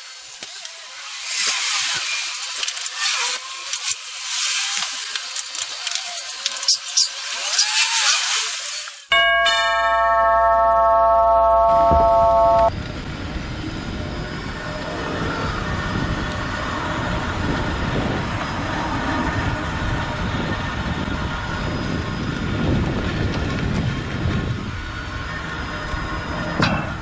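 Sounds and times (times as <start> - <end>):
drivetrain and road noise: 11.0 - 27.0.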